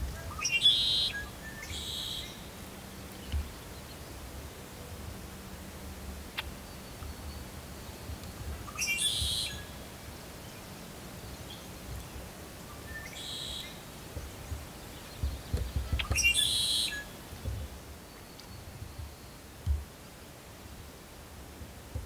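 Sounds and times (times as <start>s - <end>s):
blackbird singing: 0.1s - 4.0s, 6.6s - 9.8s, 12.7s - 13.8s, 14.4s - 17.2s.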